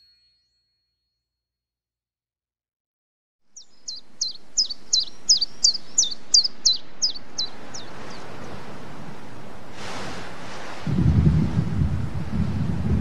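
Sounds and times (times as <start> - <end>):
bird chirping rapidly: 3.5 - 8.6
rushing wind noise: 4.0 - 13.0.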